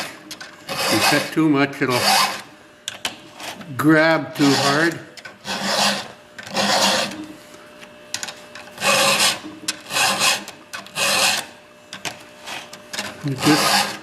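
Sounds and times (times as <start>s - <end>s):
file rasping on chainsaw chain: 0.7s - 2.4s, 4.3s - 7.2s, 8.8s - 11.5s, 12.4s - 14.0s.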